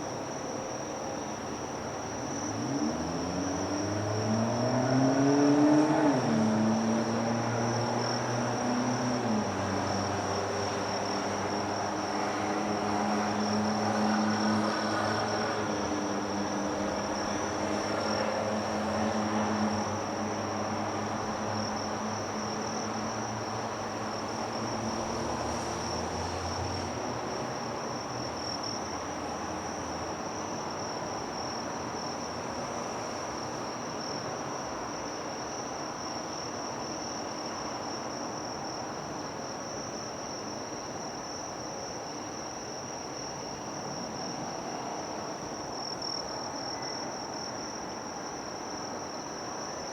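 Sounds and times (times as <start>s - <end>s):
insects trilling: 42.2s - 49.9s.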